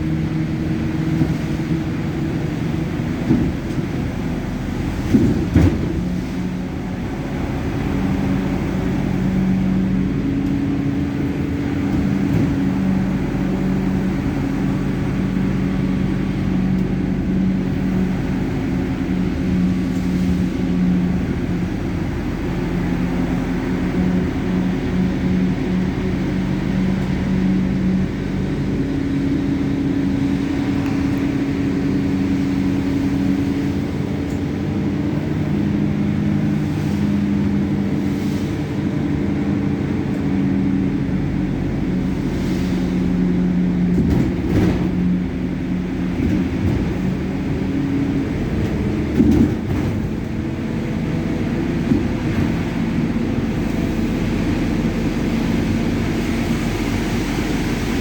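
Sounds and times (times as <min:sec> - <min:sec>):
vehicle engine droning: 0:00.0 - 0:58.0.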